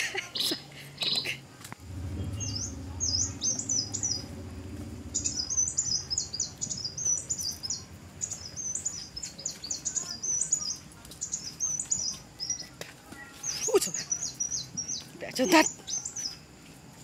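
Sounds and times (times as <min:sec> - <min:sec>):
songbird chirping: 0:00.0 - 0:16.5
low rumble: 0:01.8 - 0:08.6.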